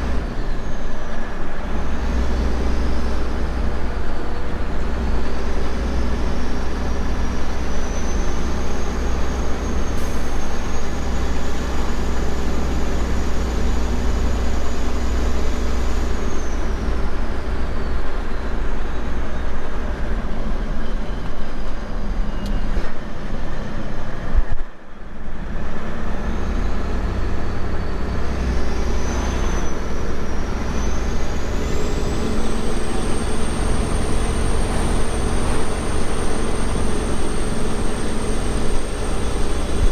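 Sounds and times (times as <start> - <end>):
road noise: 0.0 - 39.9
truck diesel engine drone: 0.0 - 39.9
high whine: 26.6 - 39.9.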